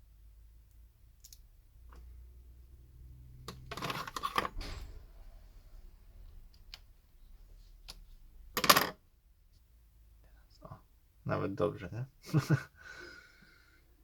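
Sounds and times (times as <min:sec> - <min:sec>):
tools rattling: 0:03.5 - 0:05.3.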